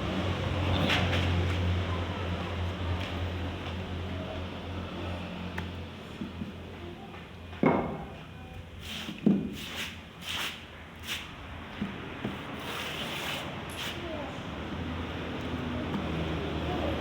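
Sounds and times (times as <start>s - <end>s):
scraping strokes on bamboo: 8.8s - 11.4s, 12.3s - 14.1s.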